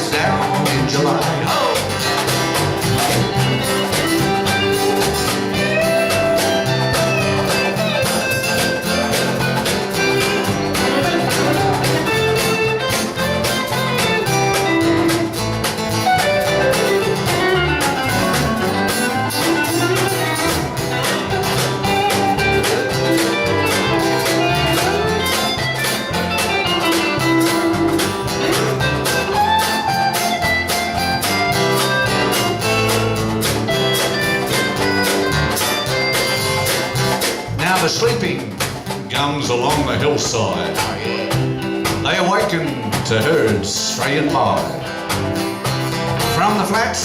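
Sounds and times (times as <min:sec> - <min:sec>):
country band playing: 0:00.0 - 0:47.0
guitars strumming: 0:00.0 - 0:47.0
sliding lead melody: 0:00.0 - 0:47.0.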